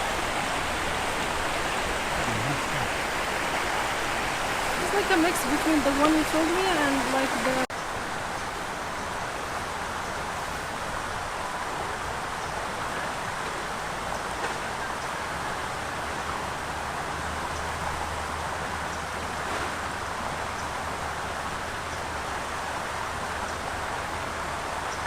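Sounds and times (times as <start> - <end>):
running water rushing: 0.0 - 25.0.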